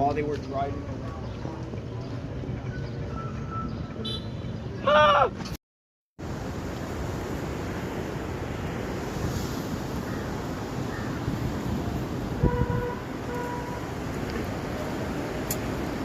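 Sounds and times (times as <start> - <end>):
street traffic noise: 0.0 - 5.6, 6.2 - 16.0
car horn toots: 4.0 - 4.5, 12.4 - 13.9.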